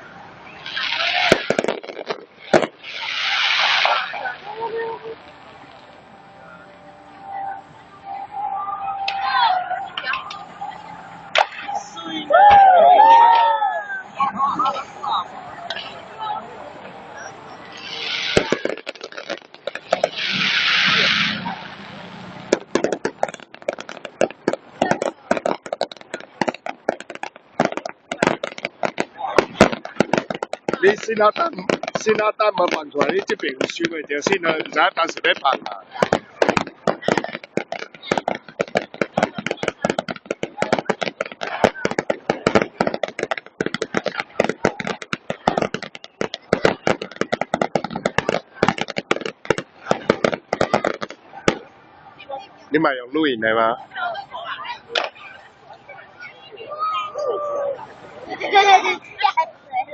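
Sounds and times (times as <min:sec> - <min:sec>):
fireworks crackling: 0:00.0 - 0:59.9.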